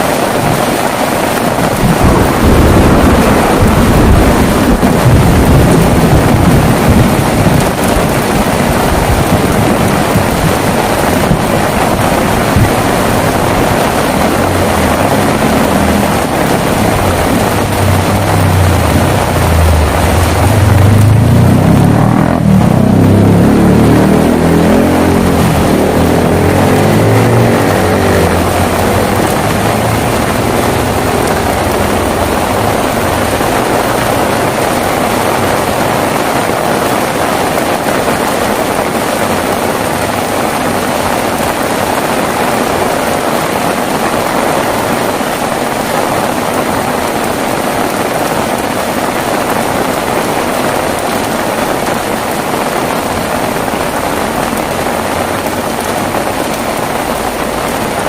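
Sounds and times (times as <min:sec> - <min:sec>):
heavy rain: 0:00.0 - 0:58.0
low thunder rumble: 0:01.4 - 0:42.9.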